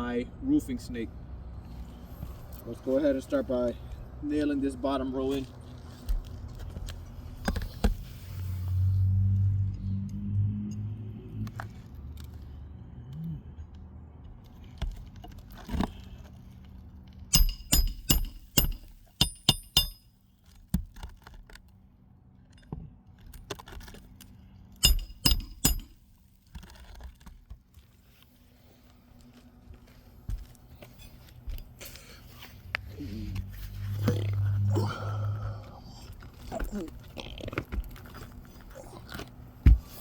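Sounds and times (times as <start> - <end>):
hammer striking roofing nails: 17.3 - 20.0, 24.8 - 26.0.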